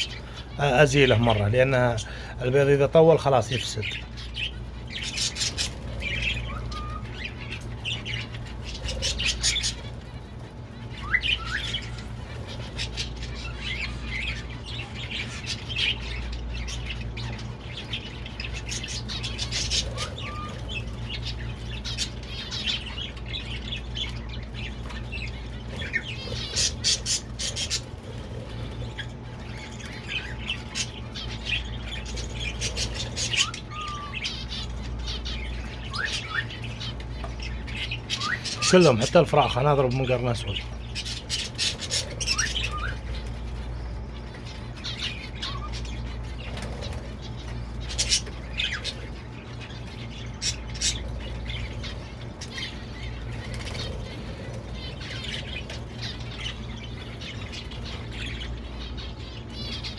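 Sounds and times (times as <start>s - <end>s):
air conditioner hum: 0.0s - 59.9s
caged birds chirping and squawking: 0.0s - 59.9s.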